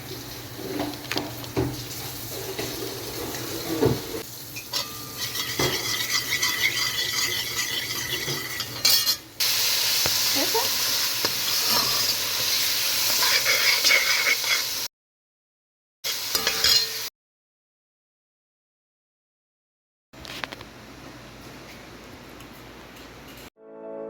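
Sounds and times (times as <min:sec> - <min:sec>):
food sizzling in a pan: 0:00.0 - 0:14.9, 0:16.0 - 0:17.1
utensil scraping a pot: 0:04.8 - 0:09.2, 0:13.0 - 0:14.8.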